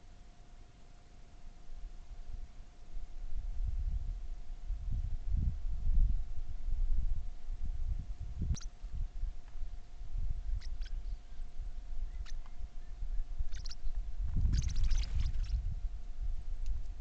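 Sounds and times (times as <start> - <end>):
birds chirping: 10.5 - 15.6.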